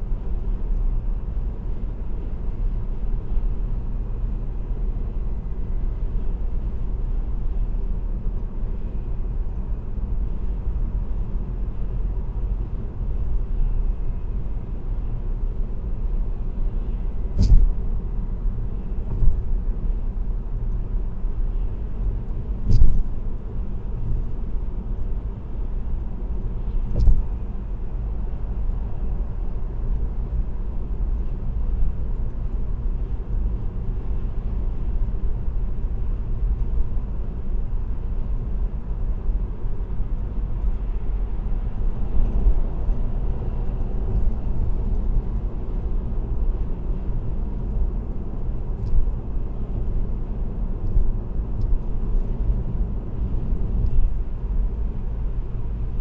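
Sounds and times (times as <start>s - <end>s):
road and tyre rumble: 0.0s - 56.0s
short thumps: 17.4s - 17.8s, 22.6s - 23.2s, 26.9s - 27.4s.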